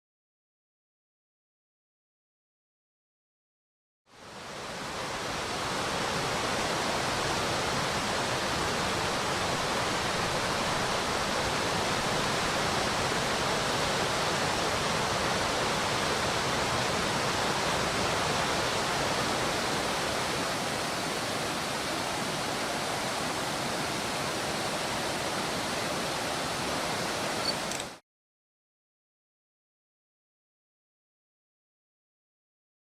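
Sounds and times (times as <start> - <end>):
stream rushing over rocks: 4.2 - 28.0.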